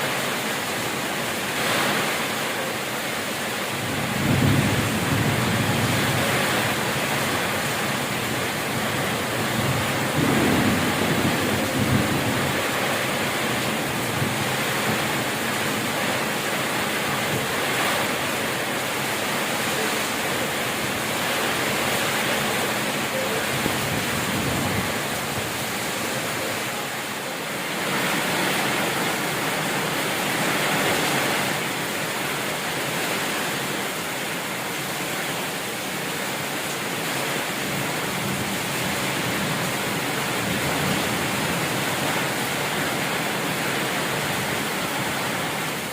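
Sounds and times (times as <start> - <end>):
heavy rain pouring: 0.0 - 45.9
gusting wind: 3.7 - 34.1.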